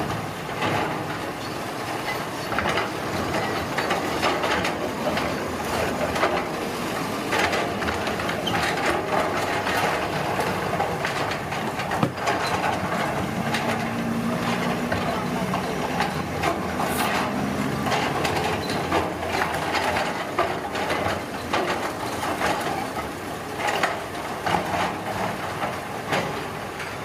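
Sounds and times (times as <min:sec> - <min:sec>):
construction machinery engine: 0:00.0 - 0:27.0
metallic clanks and knocks: 0:07.3 - 0:22.8.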